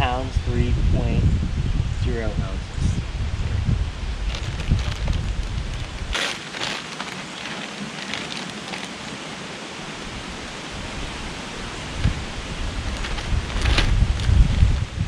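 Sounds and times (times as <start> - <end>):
wind gusts buffeting microphone: 0.0 - 6.8, 9.8 - 15.0
rushing wind: 0.0 - 15.0
faint rustles: 4.0 - 9.5, 11.8 - 15.0.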